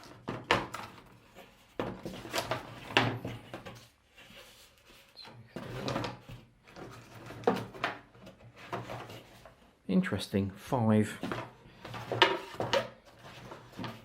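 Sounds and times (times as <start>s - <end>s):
knocks and rustles of packaging: 0.0s - 4.0s, 5.5s - 9.6s, 11.1s - 14.0s.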